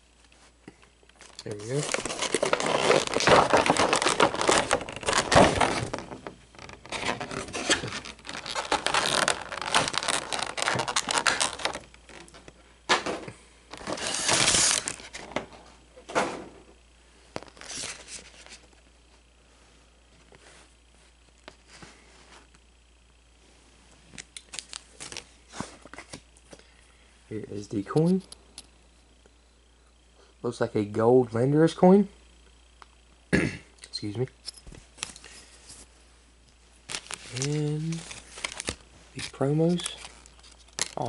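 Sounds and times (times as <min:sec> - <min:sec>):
packaging crinkling and tearing: 0:01.2 - 0:12.4, 0:13.7 - 0:15.4, 0:17.4 - 0:18.6, 0:36.9 - 0:41.0.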